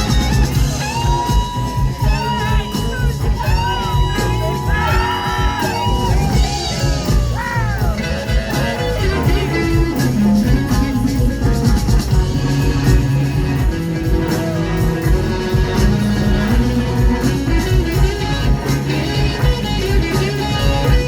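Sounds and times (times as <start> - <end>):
blues band playing: 0.0 - 21.0
electric guitar bending notes: 0.0 - 21.0.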